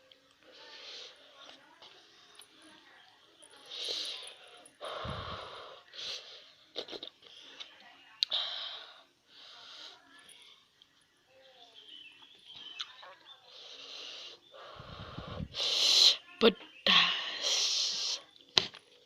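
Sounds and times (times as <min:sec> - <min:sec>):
sharp hissing breaths: 0:00.5 - 0:01.2, 0:03.7 - 0:06.6, 0:08.3 - 0:10.0, 0:13.5 - 0:16.3, 0:16.9 - 0:18.3.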